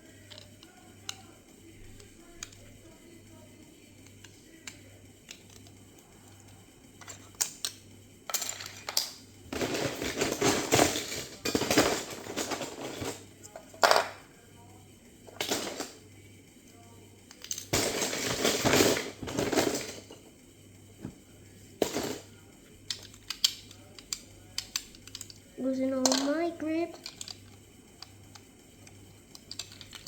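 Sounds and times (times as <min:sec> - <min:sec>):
plastic bricks clicking: 0:22.9 - 0:25.4, 0:26.0 - 0:30.0.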